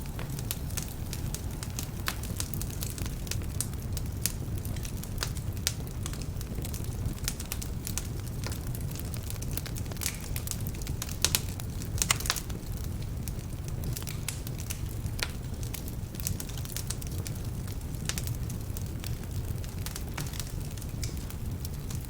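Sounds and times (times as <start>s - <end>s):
low rumble of flames: 0.0s - 22.0s
sharp crackles of burning wood: 0.0s - 22.0s.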